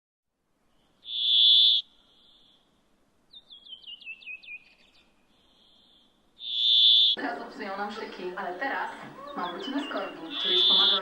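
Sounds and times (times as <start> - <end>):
small bird chirping: 0.7 - 2.7, 3.3 - 7.2, 9.2 - 11.0
loud steady high tone: 10.3 - 11.0.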